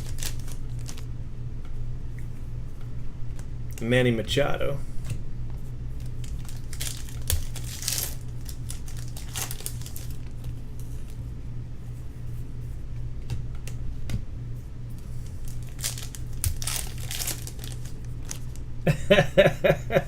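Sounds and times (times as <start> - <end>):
foil wrappers crinkling and tearing: 0.0 - 1.1, 6.0 - 11.2, 15.0 - 18.7
steady low hum: 0.0 - 20.0.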